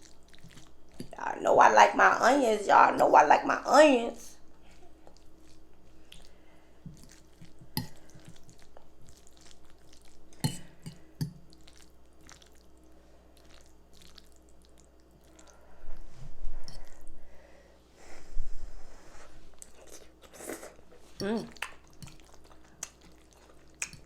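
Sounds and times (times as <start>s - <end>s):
wet chewing and mouth smacks: 11.2s - 12.8s, 13.4s - 15.6s, 21.5s - 24.0s.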